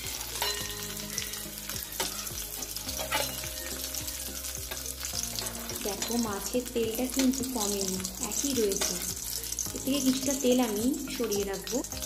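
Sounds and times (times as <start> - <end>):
fish sizzling in hot oil: 0.0 - 12.0
metal spatula scraping pan: 0.1 - 6.4.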